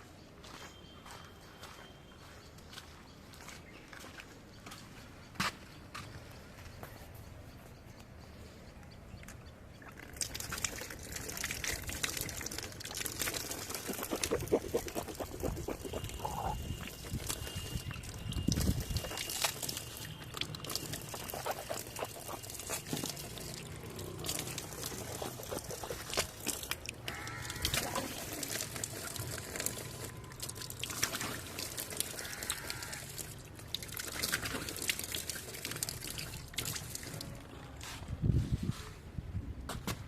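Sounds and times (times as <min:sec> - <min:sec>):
loose material pouring: 0:10.2 - 0:37.2.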